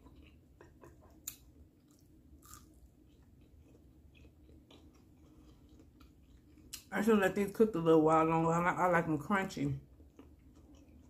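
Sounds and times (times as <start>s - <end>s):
close-up chewing: 0.0s - 6.9s, 9.8s - 11.0s.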